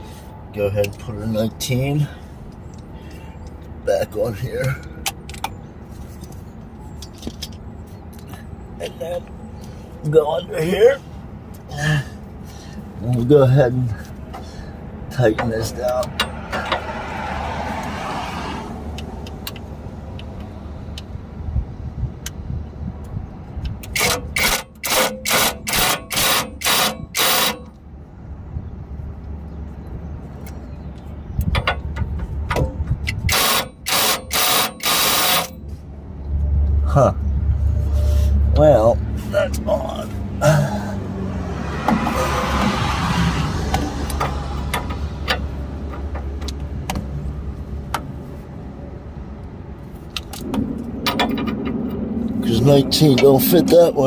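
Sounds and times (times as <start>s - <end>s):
steady low rumble: 18.6s - 23.9s, 35.5s - 54.0s
impact wrench bursts: 23.9s - 27.8s, 33.2s - 35.6s.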